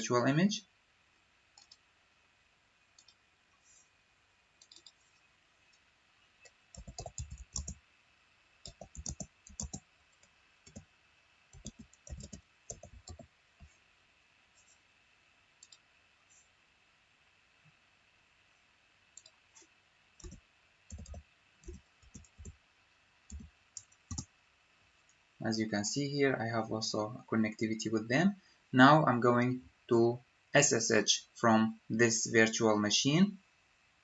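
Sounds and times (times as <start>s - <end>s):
keyboard typing: 1.6s - 1.8s, 4.6s - 5.0s, 6.4s - 7.8s, 8.6s - 10.9s, 11.5s - 13.7s, 20.2s - 22.6s, 23.3s - 24.3s
mouse clicks: 4.6s - 5.0s.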